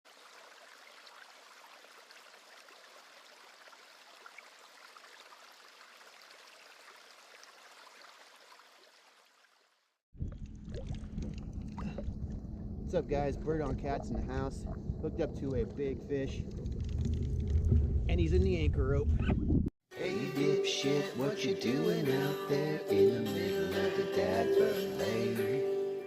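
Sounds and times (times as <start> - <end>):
water trickling and lapping: 0.1 - 18.0
loud low rumble: 10.2 - 19.7.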